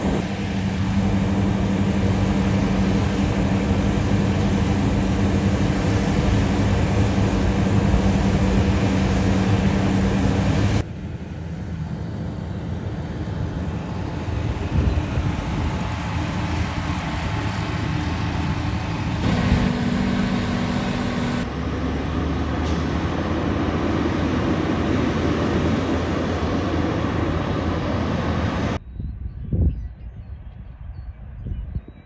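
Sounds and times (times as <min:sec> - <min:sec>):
harvest machinery engine drone: 0:00.0 - 0:10.9, 0:18.3 - 0:21.9.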